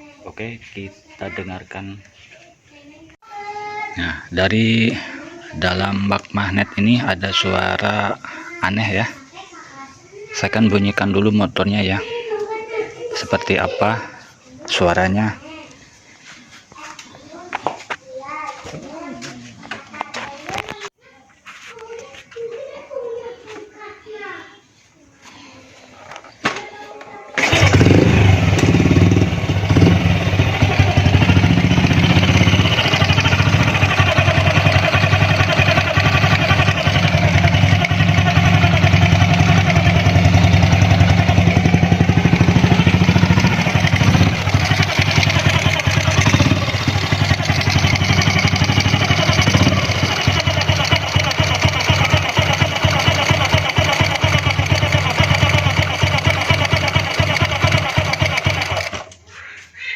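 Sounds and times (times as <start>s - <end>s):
motorcycle engine starting and idling: 27.4s - 59.2s.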